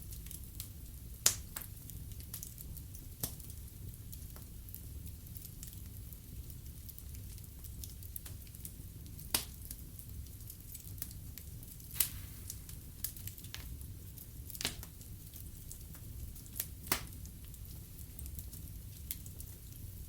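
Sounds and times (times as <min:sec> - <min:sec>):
low fire rumble: 0:00.0 - 0:20.0
wood fire crackling: 0:00.0 - 0:20.0
loud fire pops: 0:11.0 - 0:17.3.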